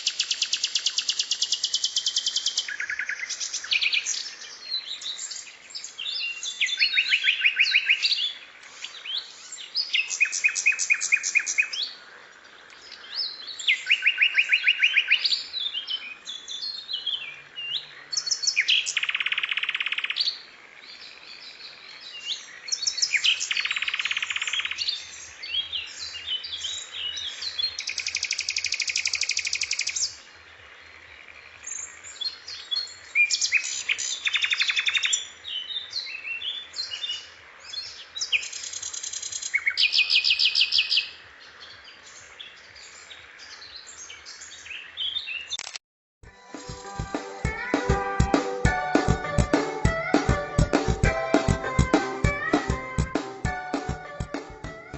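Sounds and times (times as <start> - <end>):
songbird chirping and trilling: 0.0 - 30.2.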